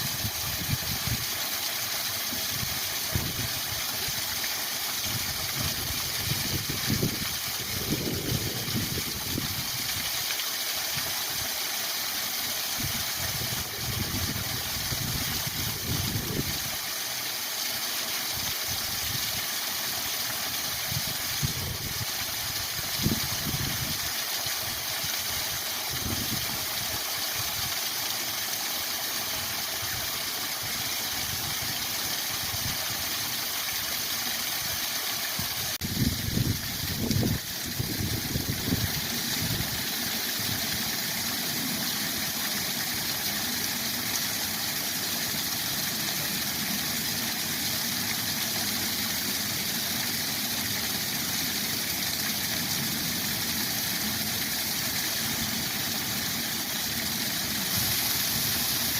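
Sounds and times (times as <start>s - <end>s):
waterfall rushing: 24.3s - 58.9s.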